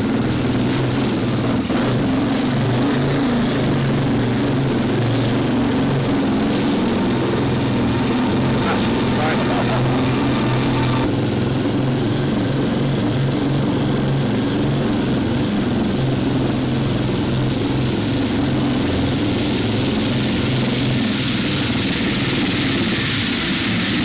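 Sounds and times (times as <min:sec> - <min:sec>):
motor droning: 0:04.8 - 0:11.1.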